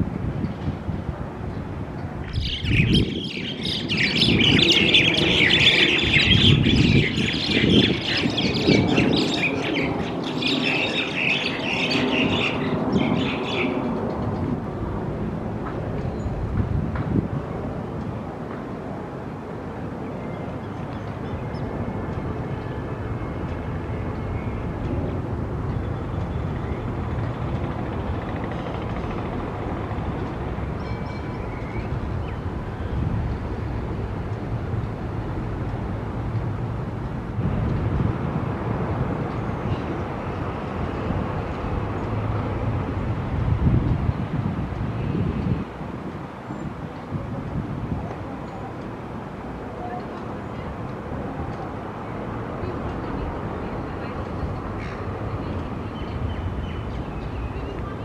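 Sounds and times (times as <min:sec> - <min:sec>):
city background rumble: 0:00.0 - 0:58.0
flock of birds chirping: 0:01.5 - 0:14.5, 0:19.8 - 0:29.3, 0:29.9 - 0:34.0, 0:49.8 - 0:58.0.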